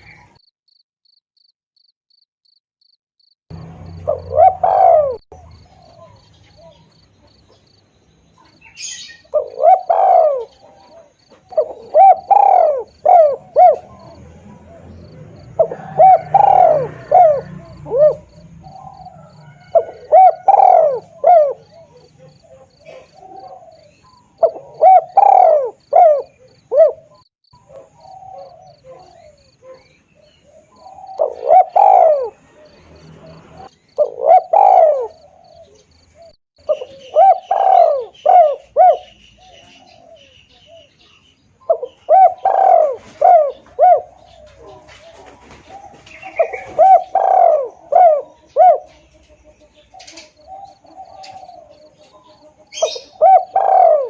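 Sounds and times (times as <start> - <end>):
dove cooing: 3.8 - 7.6, 8.4 - 54.0.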